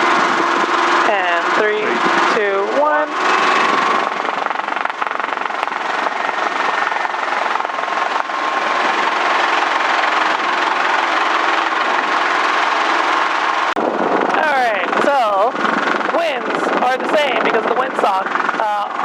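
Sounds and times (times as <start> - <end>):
helicopter engine and rotors droning: 0.0 - 19.0.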